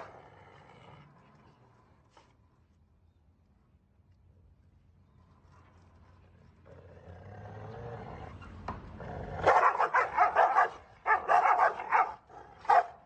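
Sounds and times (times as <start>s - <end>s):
dog barking rapidly: 9.4s - 13.0s.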